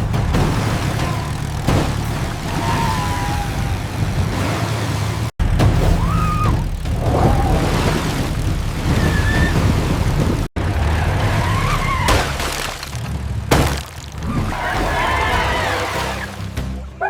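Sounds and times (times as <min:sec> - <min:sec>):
engine rumble: 0:00.0 - 0:17.0
mud splashing: 0:00.0 - 0:17.0
short squeals: 0:00.6 - 0:07.6.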